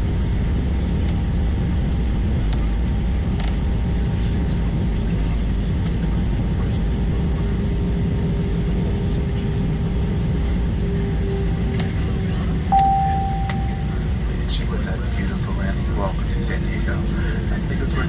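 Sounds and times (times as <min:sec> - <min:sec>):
aircraft cabin engine rumble: 0:00.0 - 0:18.0
single-tone cabin chime: 0:12.7 - 0:14.1
faint hum: 0:12.7 - 0:14.4.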